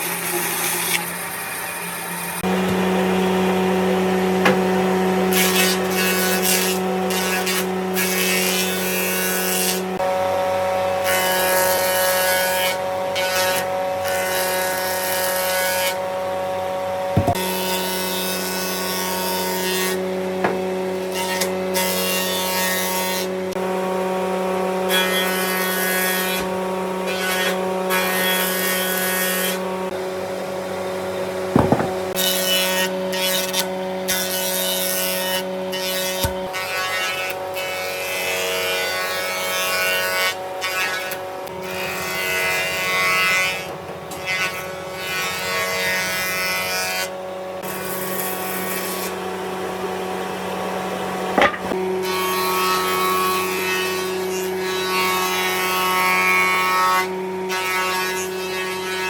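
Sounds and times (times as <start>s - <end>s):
power tool motor running: 0.0s - 7.6s, 16.9s - 19.0s, 29.9s - 32.8s
sharp knocks: 17.2s - 17.5s, 20.4s - 20.7s, 31.6s - 32.2s, 51.4s - 51.8s.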